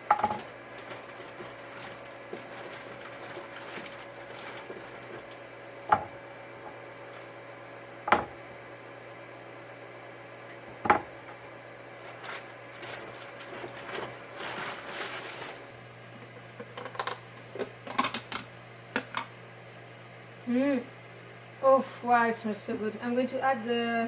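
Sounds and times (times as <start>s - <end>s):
scraping: 0.0s - 5.4s, 12.0s - 15.7s
utensils clicking and tapping: 0.0s - 6.1s
steady low hum: 0.0s - 24.0s.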